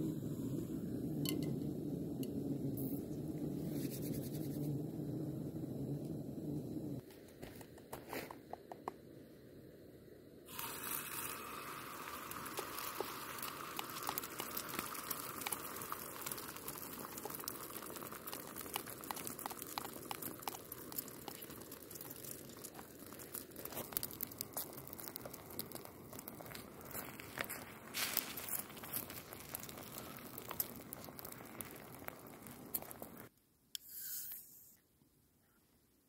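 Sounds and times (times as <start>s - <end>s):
batter sizzling in frying pan: 10.5s - 33.3s.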